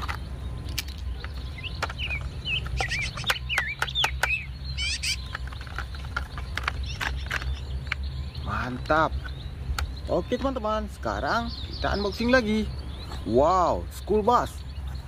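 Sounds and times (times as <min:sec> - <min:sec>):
plastic toy truck clicks: 0:00.0 - 0:04.4, 0:05.0 - 0:08.0
birds chirping: 0:00.0 - 0:15.0.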